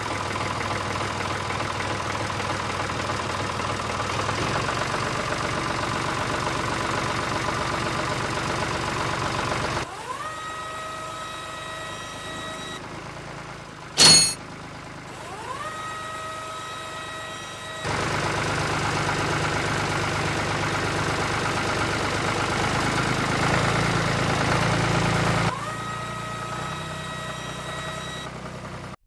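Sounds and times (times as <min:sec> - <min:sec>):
small electric motor whine: 0:09.8 - 0:12.8, 0:15.1 - 0:18.1, 0:25.4 - 0:28.3.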